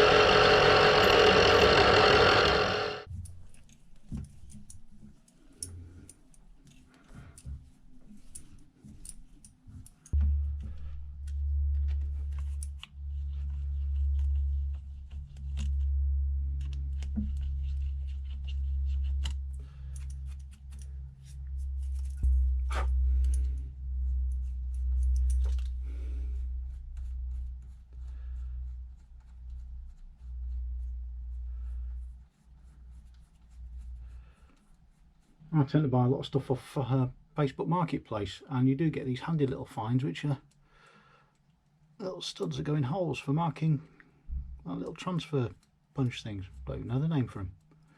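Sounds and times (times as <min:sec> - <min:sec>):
drill motor humming: 0:00.0 - 0:03.1
short clicks and scraping: 0:00.0 - 0:03.1.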